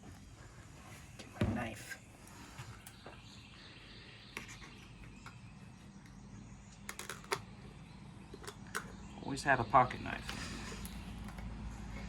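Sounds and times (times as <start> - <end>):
small objects clicking and tapping: 6.7 - 7.5, 8.3 - 9.0.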